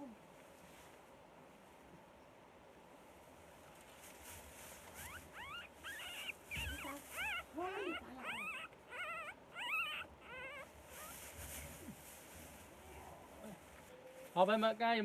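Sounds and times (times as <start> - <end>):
puppies whimpering and squealing: 5.0 - 11.2.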